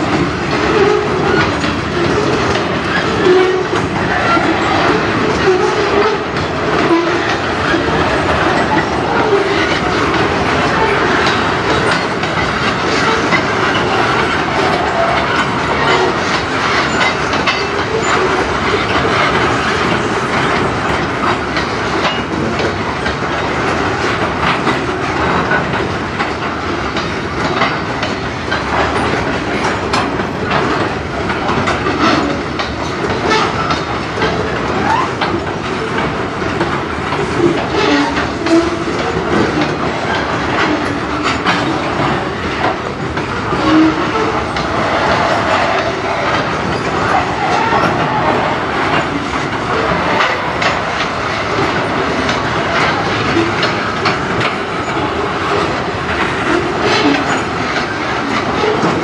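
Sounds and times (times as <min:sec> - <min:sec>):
train wheels rumbling on rail: 0:00.0 - 0:59.0
wheels clicking over rail joints: 0:00.0 - 0:59.0
wheel squeals: 0:00.6 - 0:09.9, 0:10.5 - 0:20.5, 0:34.6 - 0:36.0, 0:43.5 - 0:49.1.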